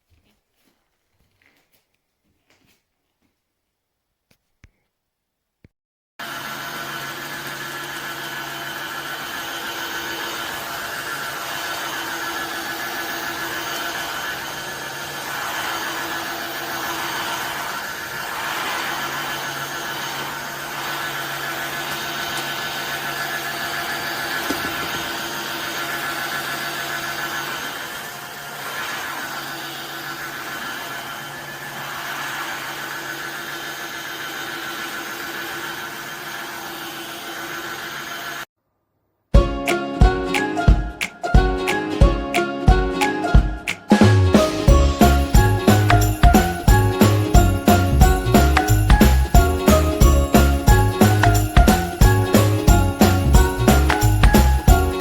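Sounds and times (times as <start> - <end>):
floor cleaner motor hum and whine: 6.2 - 38.5.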